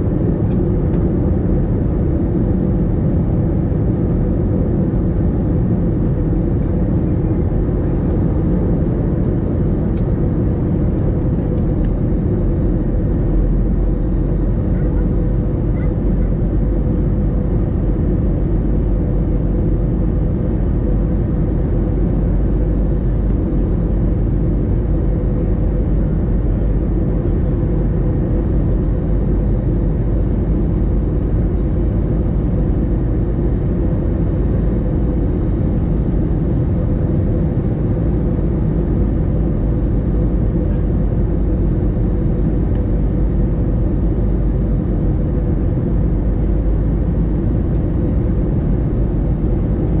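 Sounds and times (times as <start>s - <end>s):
airplane cabin engine and airflow noise: 0.0s - 50.0s.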